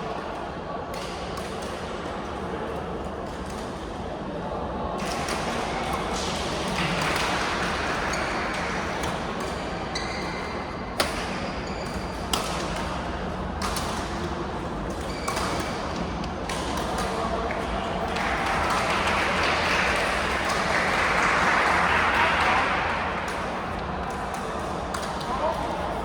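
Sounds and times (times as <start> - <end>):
crowd and hall noise: 0.0 - 26.0
sneakers squeaking on floor: 9.6 - 10.7, 11.3 - 12.3, 15.0 - 16.0.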